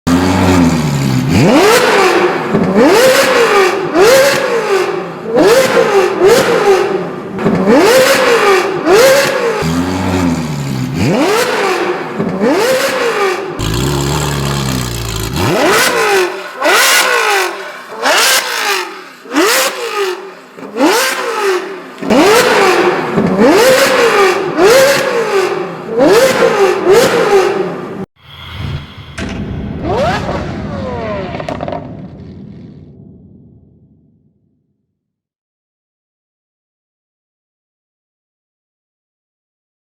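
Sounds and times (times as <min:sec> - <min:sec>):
car engine revving: 0:00.1 - 0:28.0.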